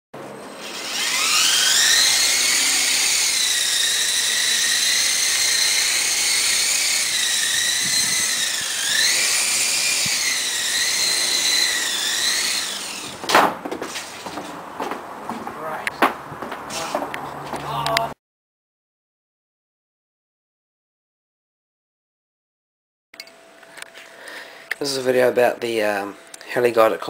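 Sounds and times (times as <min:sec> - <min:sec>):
high-pitched electric motor whine: 0:00.4 - 0:13.2.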